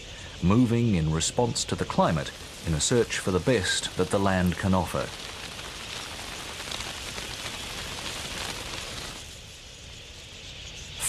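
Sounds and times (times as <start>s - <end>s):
large flock of birds hissing: 0.0s - 11.0s.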